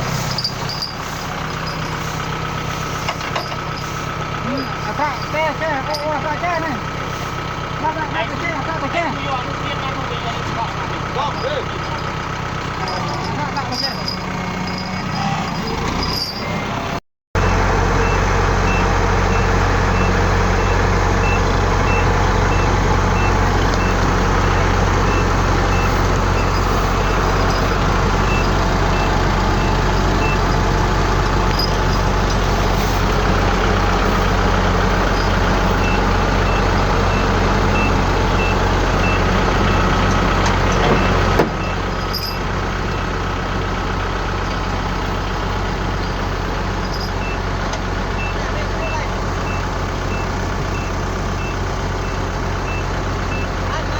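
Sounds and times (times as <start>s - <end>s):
heavy diesel engine running: 0.0s - 53.9s
reversing alarm beeps: 17.4s - 24.0s, 24.6s - 30.6s, 35.2s - 39.9s, 48.2s - 53.6s.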